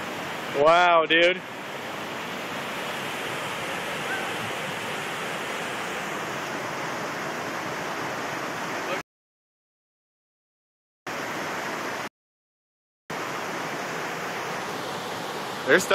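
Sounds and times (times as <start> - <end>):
floodwater rushing: 0.0 - 9.0, 13.1 - 15.9.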